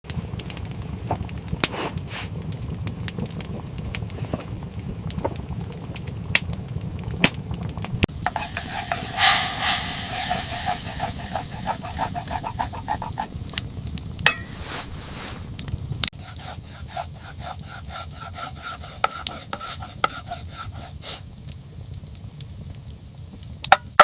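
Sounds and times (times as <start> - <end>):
food sizzling in a pan: 8.1 - 13.7, 14.3 - 15.6, 16.2 - 21.4, 23.7 - 24.0.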